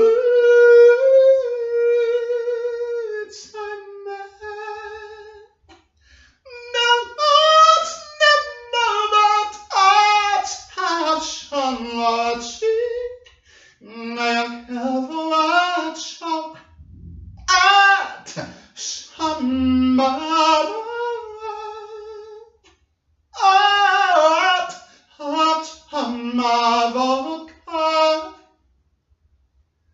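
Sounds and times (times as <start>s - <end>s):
person singing unaccompanied: 6.5s - 16.6s, 17.5s - 22.5s, 23.4s - 28.4s.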